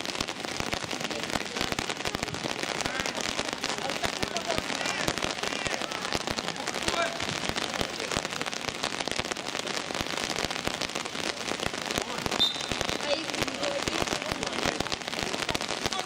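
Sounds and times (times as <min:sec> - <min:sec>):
crackling patter on microphone: 0:00.0 - 0:16.0
distant shouting voices: 0:02.4 - 0:08.4.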